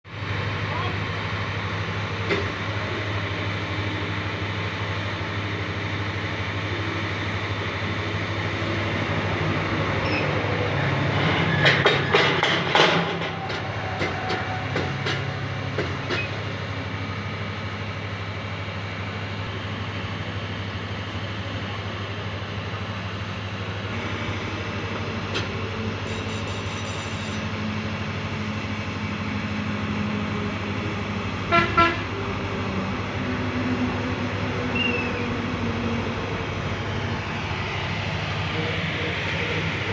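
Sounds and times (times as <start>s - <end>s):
train rumbling: 0.1s - 39.9s
loud rattling clanks: 11.2s - 16.5s.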